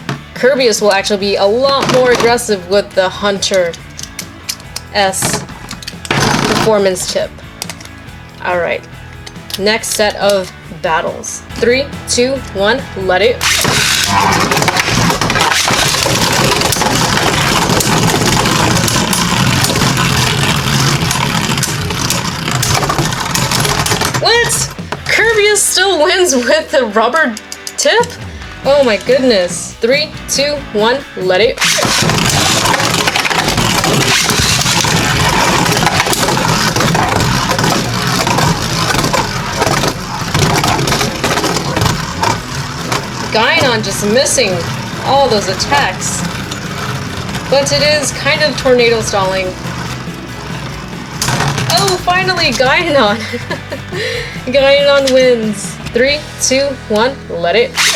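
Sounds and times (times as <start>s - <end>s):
spinning tops whirring in plastic stadium: 0.0s - 30.5s, 31.5s - 56.8s
spinning tops clashing in plastic stadium: 31.6s - 53.8s.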